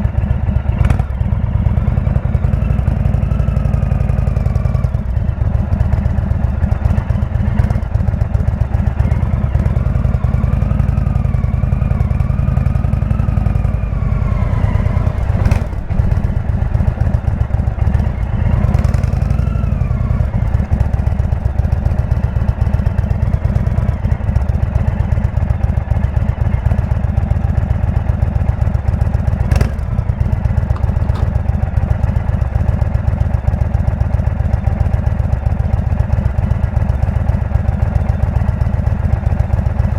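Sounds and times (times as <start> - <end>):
motorcycle engine running: 0.0 - 39.9
short knocks: 30.7 - 31.6.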